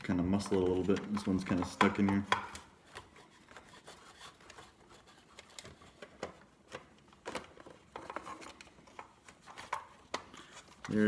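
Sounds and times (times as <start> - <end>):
plastic clicks and scraping: 0.2 - 11.0.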